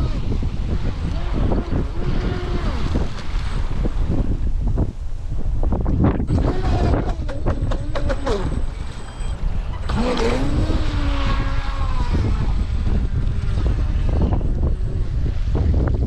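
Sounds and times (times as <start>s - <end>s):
wind buffeting microphone: 0.0s - 16.0s
electric motor whine: 6.3s - 15.7s.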